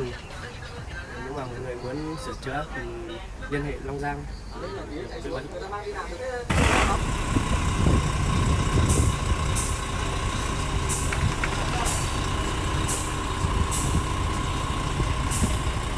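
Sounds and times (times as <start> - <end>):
truck diesel engine running: 6.5 - 15.9.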